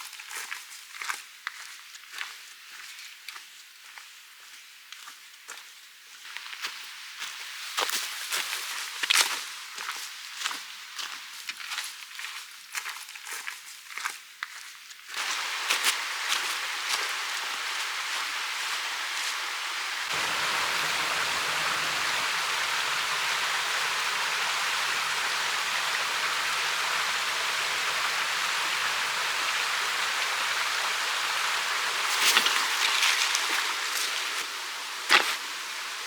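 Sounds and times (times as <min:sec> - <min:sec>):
stream flowing: 0:15.1 - 0:36.0.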